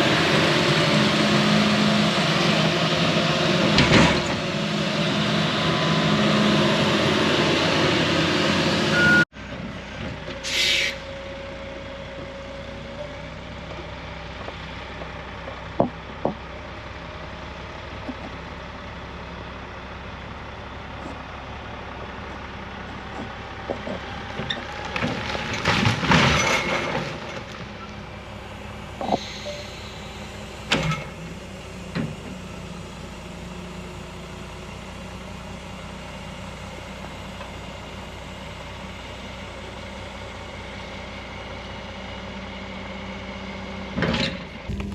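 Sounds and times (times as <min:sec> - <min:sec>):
excavator engine running: 0:11.3 - 0:43.6, 0:44.6 - 0:44.9
trees crashing and clattering: 0:23.6 - 0:27.7.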